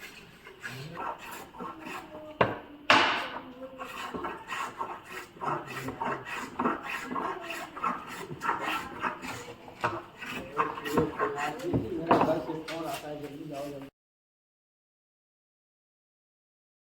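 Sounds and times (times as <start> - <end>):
hand tool scraping wood: 0.0 - 13.9
sharp knock: 2.4 - 3.3.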